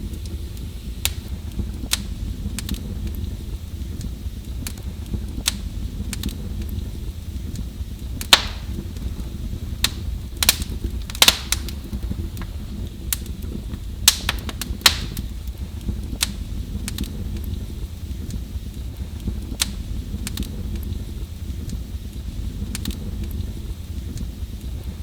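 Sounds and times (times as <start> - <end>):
wood fire crackling in fireplace: 0.0 - 25.0.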